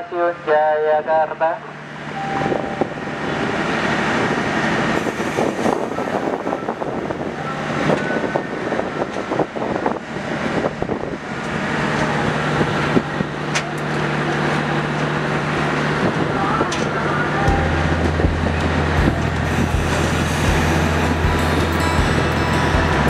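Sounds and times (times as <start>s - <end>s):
steady low hum: 17.1s - 23.0s
train wheels clicking on rails: 18.0s - 23.0s.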